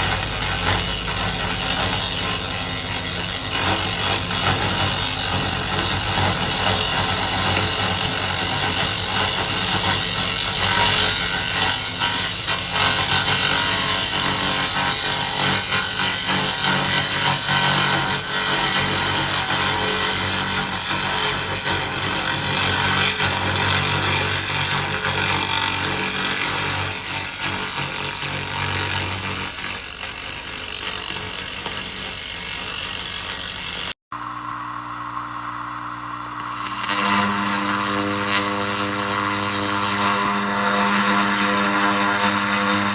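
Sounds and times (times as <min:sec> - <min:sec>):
low machine hum: 0:00.0 - 0:15.1
mechanical hum with tones: 0:00.0 - 0:42.9.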